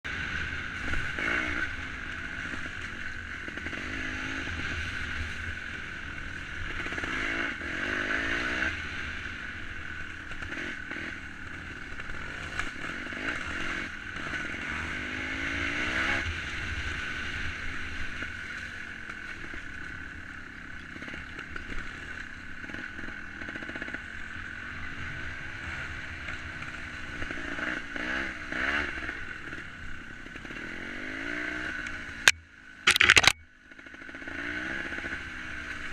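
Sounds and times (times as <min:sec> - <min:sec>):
two-stroke motorcycle engine revving: 0:00.1 - 0:35.9.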